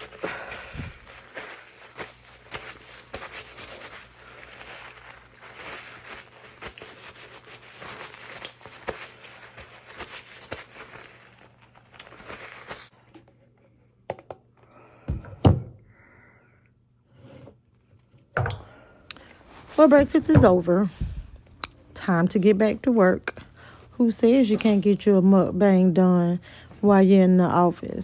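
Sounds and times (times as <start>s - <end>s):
dull thumps: 15.1s - 15.8s, 19.8s - 21.4s.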